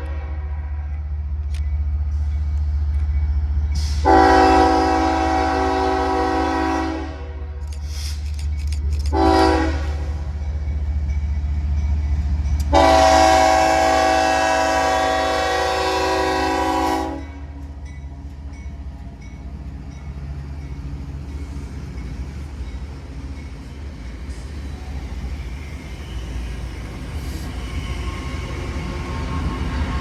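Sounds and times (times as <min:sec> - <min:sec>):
low rumble of passing train: 0:00.0 - 0:30.0
locomotive air horn blasts: 0:03.9 - 0:07.6, 0:09.1 - 0:10.2, 0:12.7 - 0:17.6.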